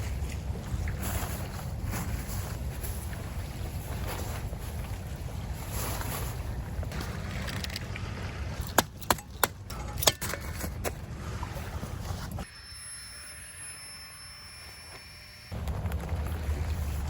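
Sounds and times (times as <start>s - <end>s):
wind rumbling on microphone: 0.0s - 8.6s
faint high whine: 12.4s - 17.0s.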